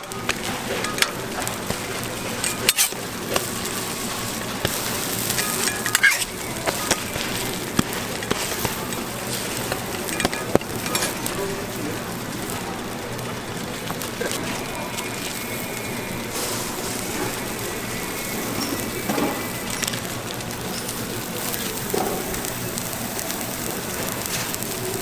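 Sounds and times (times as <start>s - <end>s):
food sizzling on a griddle: 0.0s - 25.0s
metallic clicks and scrapes: 0.3s - 11.4s.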